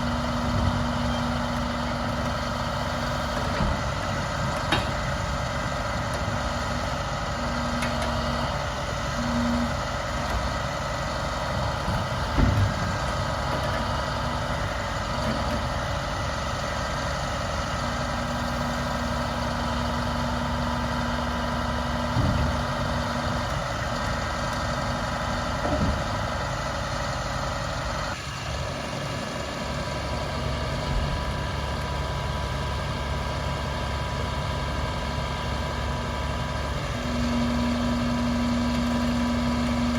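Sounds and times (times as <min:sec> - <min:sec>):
diesel engine running: 0:00.0 - 0:39.9
short knocks and clunks: 0:03.2 - 0:05.2, 0:11.6 - 0:13.9, 0:22.0 - 0:23.5, 0:25.6 - 0:26.3.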